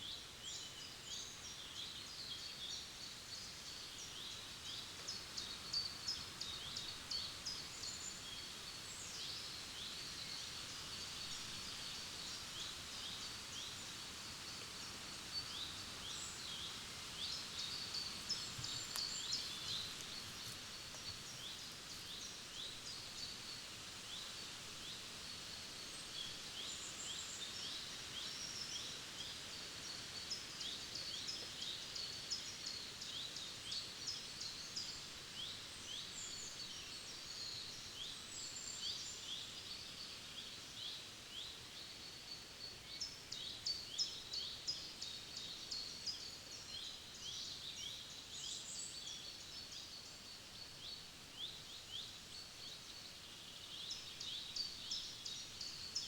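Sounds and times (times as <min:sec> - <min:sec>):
songbirds chirping: 0:00.0 - 0:56.0
steady soft hiss: 0:00.0 - 0:56.0.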